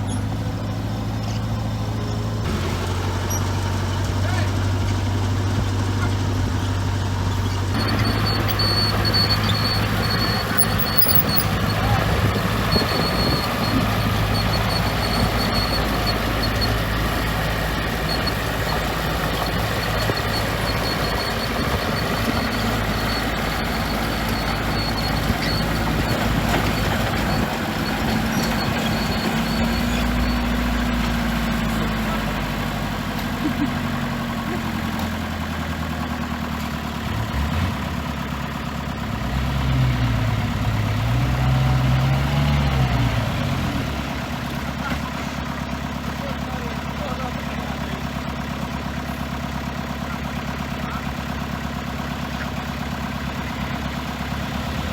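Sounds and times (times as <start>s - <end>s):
diesel machinery rumbling: 0.0s - 54.9s
faint high squeak: 7.8s - 12.0s.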